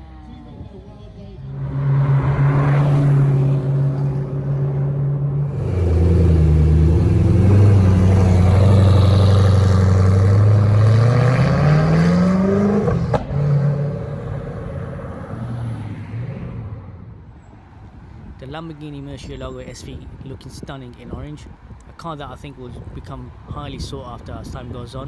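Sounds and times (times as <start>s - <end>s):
car engine accelerating: 1.3s - 17.0s
exhaust crack at upshift: 1.5s - 14.8s.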